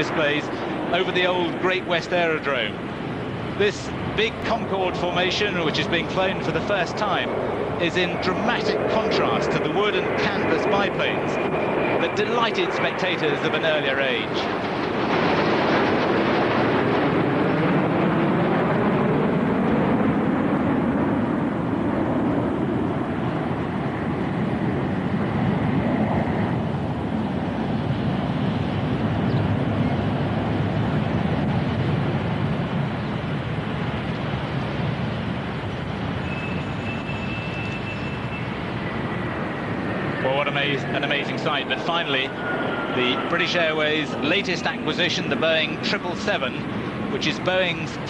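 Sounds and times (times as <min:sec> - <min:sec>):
jet aircraft flying past: 0:00.0 - 0:48.0.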